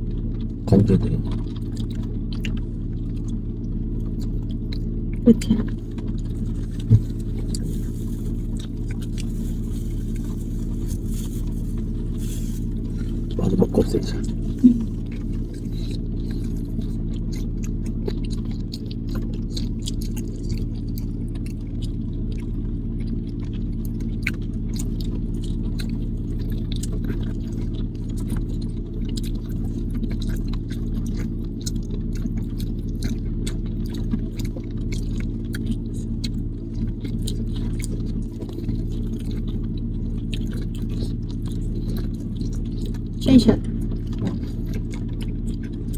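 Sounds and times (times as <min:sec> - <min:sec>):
chewing corn on the cob: 0:00.0 - 0:45.9
car cabin drone: 0:05.2 - 0:16.5.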